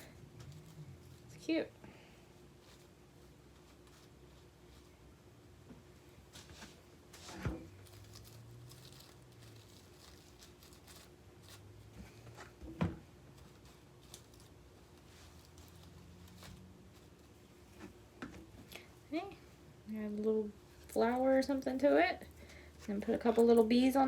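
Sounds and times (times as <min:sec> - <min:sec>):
handling craft materials: 0:06.3 - 0:19.4.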